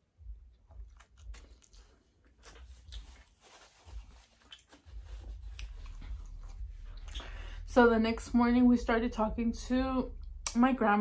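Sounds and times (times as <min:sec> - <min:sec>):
chewing with mouth clicks: 0:00.2 - 0:07.4.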